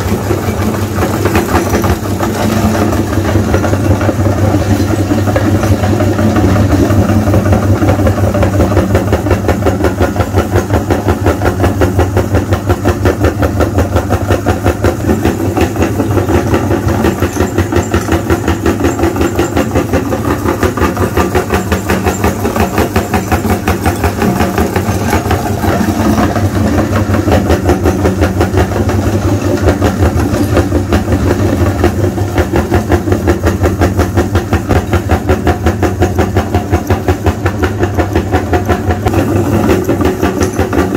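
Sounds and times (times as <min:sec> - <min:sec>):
engine running with fast pulse: 0:00.0 - 0:40.9.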